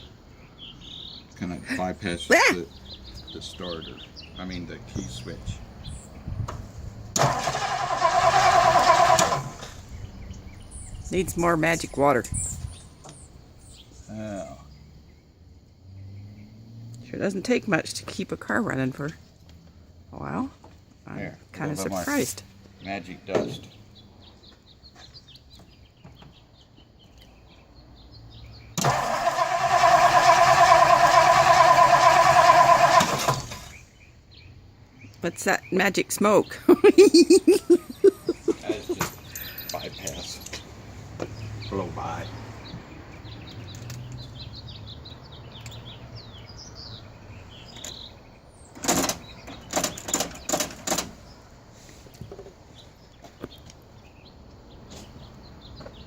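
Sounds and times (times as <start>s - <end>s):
birds chirping: 0.0s - 56.0s
car engine cranking and starting: 7.1s - 10.6s, 28.8s - 33.9s
loud sharp bursts: 7.2s - 9.8s, 28.8s - 33.7s.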